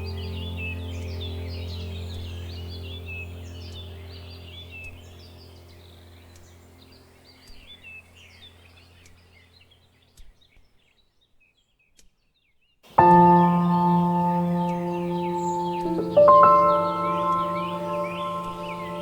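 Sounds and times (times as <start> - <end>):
birds chirping: 13.0 - 19.0
low steady drone: 13.0 - 19.0.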